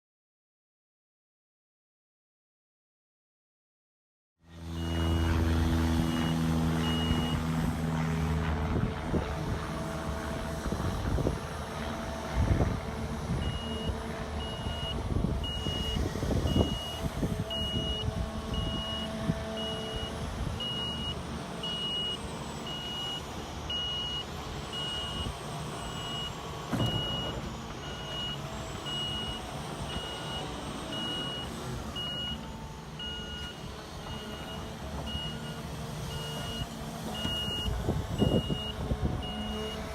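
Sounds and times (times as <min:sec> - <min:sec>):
excavator diesel engine: 0:04.4 - 0:39.9
travel alarm beeping: 0:04.8 - 0:05.4, 0:06.0 - 0:07.4, 0:13.4 - 0:39.8
machine thuds and scrapes: 0:26.7 - 0:27.8.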